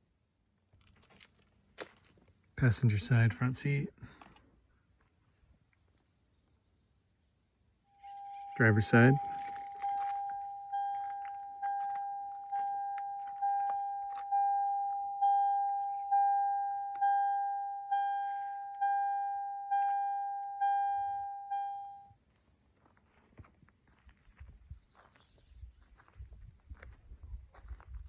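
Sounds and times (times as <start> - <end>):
car warning chime dinging: 7.9 - 22.1.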